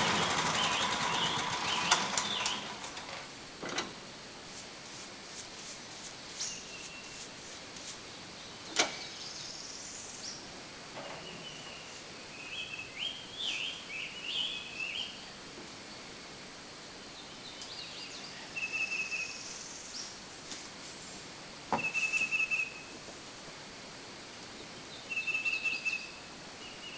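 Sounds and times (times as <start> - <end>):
songbirds chirping and warbling: 0.0 - 3.1, 6.3 - 7.4, 8.0 - 16.1, 17.0 - 20.2, 24.4 - 26.9.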